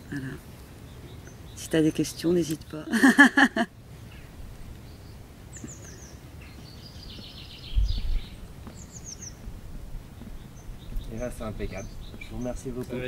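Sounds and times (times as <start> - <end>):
songbirds chirping and trilling: 0.0 - 13.0.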